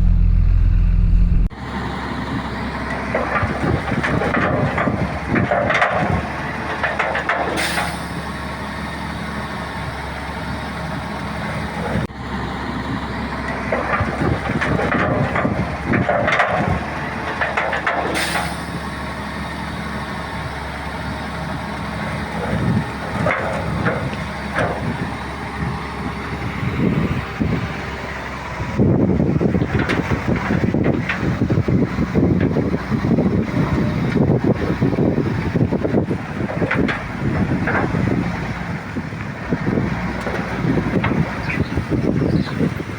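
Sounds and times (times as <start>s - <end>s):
bulldozer diesel engine running: 0.0s - 42.9s
metal clanking and rattling: 2.8s - 8.4s, 13.4s - 18.9s, 22.3s - 25.2s, 29.2s - 42.9s.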